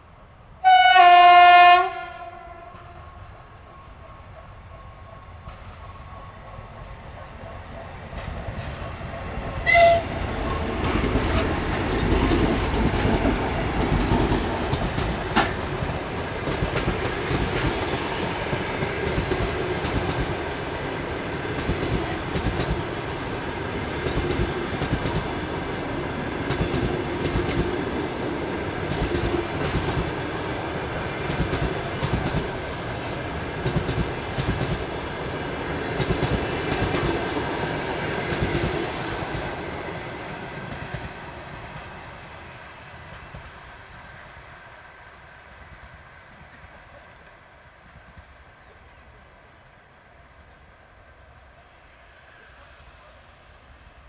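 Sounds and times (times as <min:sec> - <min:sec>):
train rumbling past: 0:00.0 - 0:54.0
loud horn tone: 0:00.6 - 0:03.0, 0:09.6 - 0:10.2
wheels clacking over rail joints: 0:05.0 - 0:39.6.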